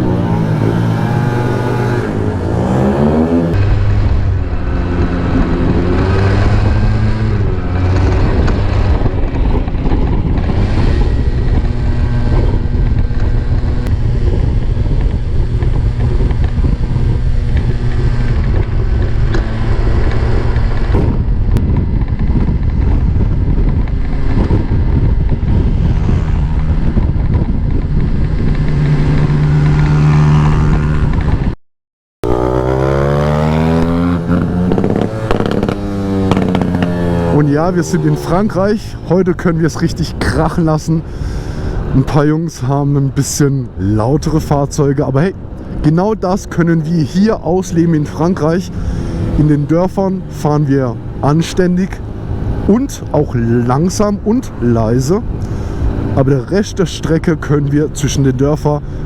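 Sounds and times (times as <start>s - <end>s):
two-stroke engines droning: 0.0s - 31.5s, 32.2s - 59.0s
engine revving: 0.0s - 31.6s, 32.2s - 59.0s.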